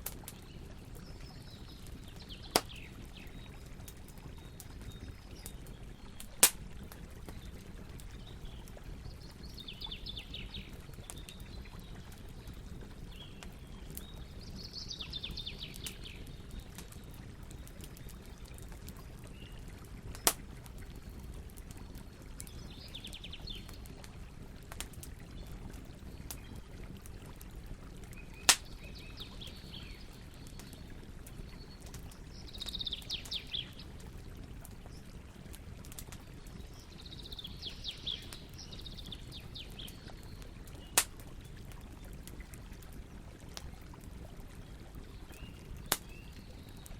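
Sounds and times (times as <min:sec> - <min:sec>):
campfire burning: 0:00.0 - 0:46.9
burning wood popping: 0:01.7 - 0:03.0, 0:03.8 - 0:08.8, 0:20.0 - 0:21.9, 0:28.1 - 0:28.9, 0:39.4 - 0:41.3.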